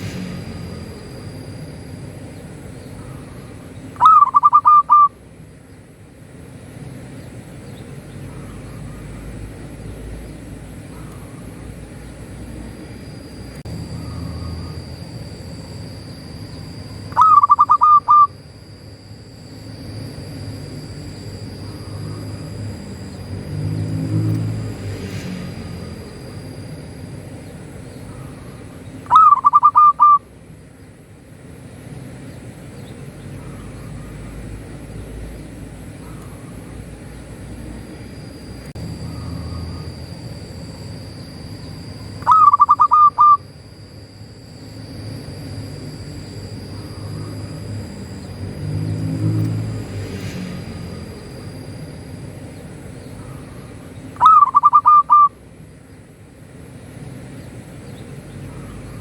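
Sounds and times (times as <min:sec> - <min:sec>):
low background rumble: 0:00.0 - 0:59.0
dove cooing: 0:02.8 - 0:05.2, 0:16.6 - 0:18.4, 0:28.1 - 0:30.3, 0:41.6 - 0:43.5, 0:53.2 - 0:55.4.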